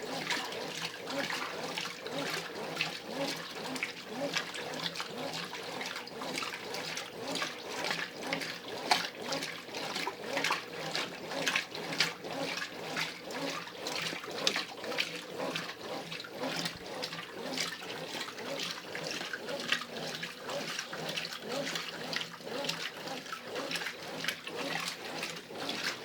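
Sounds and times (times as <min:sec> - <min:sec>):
washing machine sloshing: 0:00.0 - 0:26.0.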